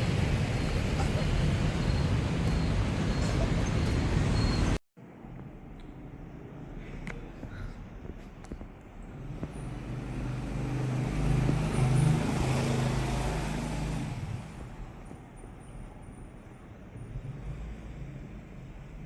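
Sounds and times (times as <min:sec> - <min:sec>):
vehicle passing by: 0:09.1 - 0:14.9.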